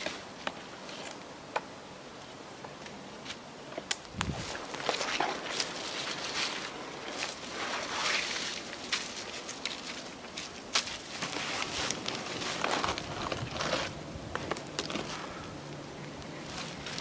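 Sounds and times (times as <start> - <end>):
rustling on forest floor: 4.1 - 17.0
footsteps: 4.2 - 15.3
sticks cracking and knocking: 8.8 - 15.8.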